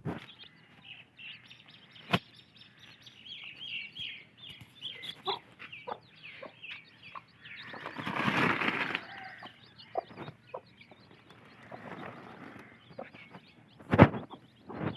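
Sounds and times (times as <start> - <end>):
chicks peeping: 0.0 - 14.9
hen clucking: 4.5 - 14.6
wings flapping: 7.7 - 9.4.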